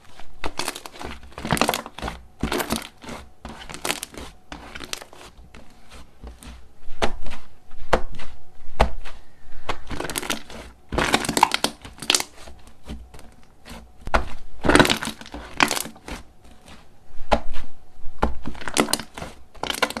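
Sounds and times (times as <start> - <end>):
slime crackling and popping: 0.4 - 5.4, 9.8 - 12.4, 13.1 - 16.6, 18.4 - 20.0.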